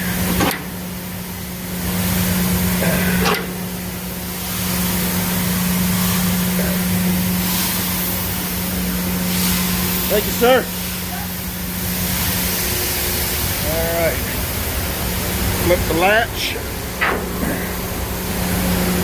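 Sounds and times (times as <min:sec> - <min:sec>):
truck engine idling: 0:08.2 - 0:19.0.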